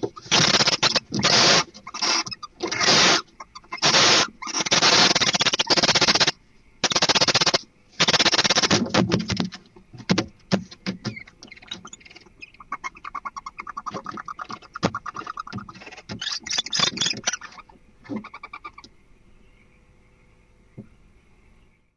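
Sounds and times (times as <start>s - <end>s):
owl ticking chittering calls: 0.0s - 8.9s, 10.0s - 19.9s
owl hissing screech: 0.2s - 8.8s.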